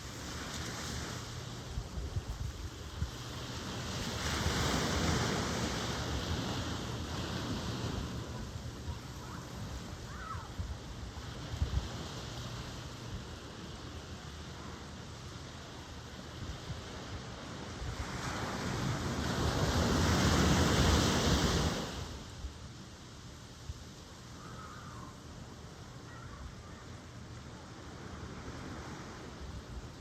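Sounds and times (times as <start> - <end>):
ocean wave rushing: 2.8 - 13.8, 17.7 - 22.3.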